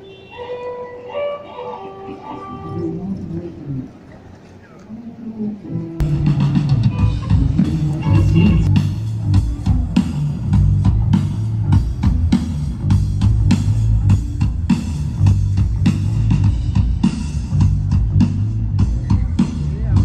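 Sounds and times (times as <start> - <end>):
electric guitar: 0.0 - 4.0, 5.6 - 11.2
bass guitar: 5.6 - 20.0
drum kit steady beat: 6.0 - 20.0.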